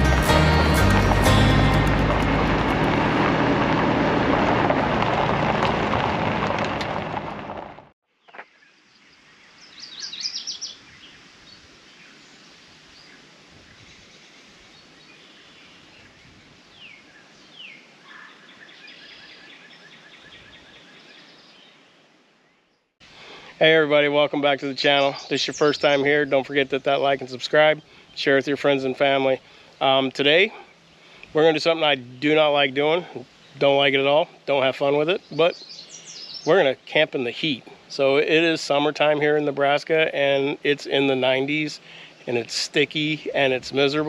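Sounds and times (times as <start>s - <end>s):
loud music: 0.0s - 3.2s
birds chirping: 8.2s - 13.2s, 13.8s - 44.0s.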